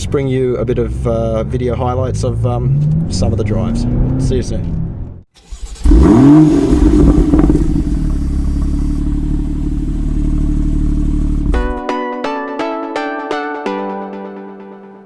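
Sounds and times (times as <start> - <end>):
car engine revving: 0.9 - 11.7.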